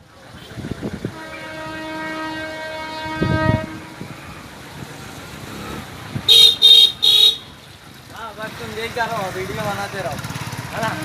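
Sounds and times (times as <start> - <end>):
train rumbling: 0.6 - 6.3
train horn: 1.1 - 4.2.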